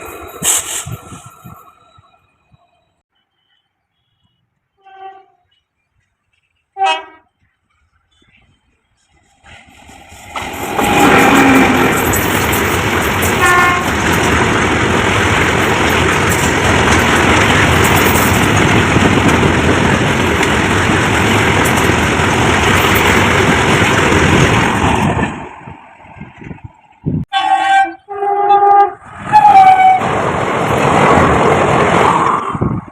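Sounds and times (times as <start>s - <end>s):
train rumbling past: 0.0s - 4.0s, 5.5s - 32.9s
train horn blasts: 3.3s - 5.5s, 6.7s - 7.4s, 13.4s - 13.9s, 27.3s - 30.0s.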